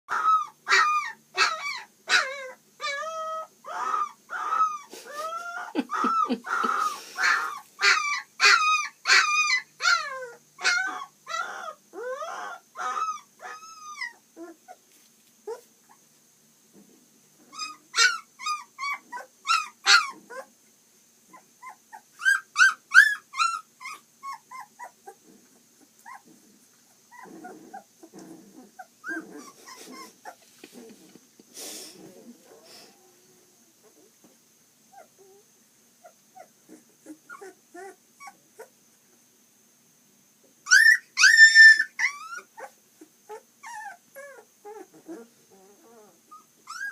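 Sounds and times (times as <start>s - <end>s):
puppies whimpering and squealing: 0.1s - 14.8s, 17.5s - 20.5s, 21.3s - 31.1s, 34.9s - 38.7s, 40.6s - 46.9s.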